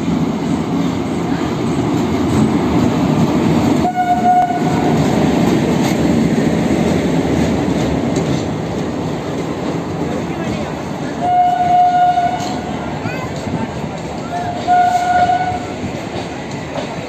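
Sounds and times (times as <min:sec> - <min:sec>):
wheels rumbling on rail: 0:00.0 - 0:17.0
train horn blast: 0:03.8 - 0:05.0, 0:11.2 - 0:12.7, 0:14.3 - 0:15.8.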